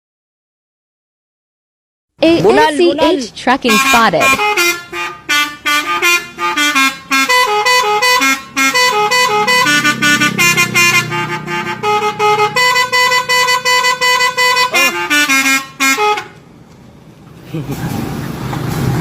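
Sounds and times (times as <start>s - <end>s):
low engine rumble: 3.0s - 19.0s
truck musical horn tune: 3.6s - 16.4s.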